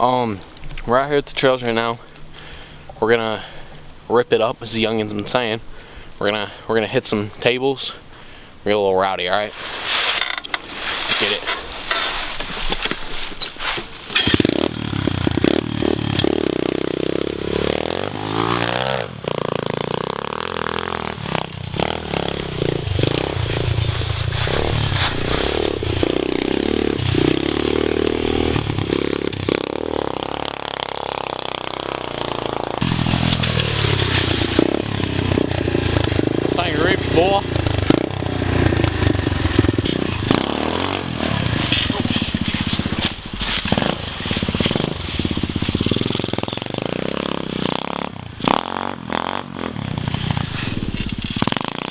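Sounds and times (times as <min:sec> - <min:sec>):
dirt bike engine revving: 0:09.6 - 0:51.9
sharp clattering: 0:10.0 - 0:16.4.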